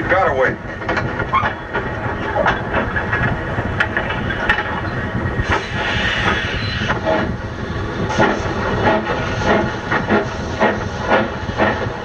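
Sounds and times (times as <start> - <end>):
rail cars clanking: 0.0 - 12.0
steam hissing: 5.4 - 7.4, 8.0 - 12.0.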